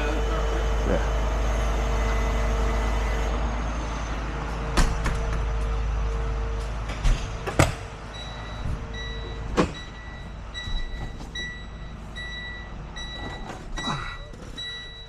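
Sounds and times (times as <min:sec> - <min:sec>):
vehicle warning beeper: 0:00.0 - 0:04.6, 0:08.0 - 0:15.0
knocks and door clunks: 0:04.7 - 0:05.6, 0:06.8 - 0:11.7.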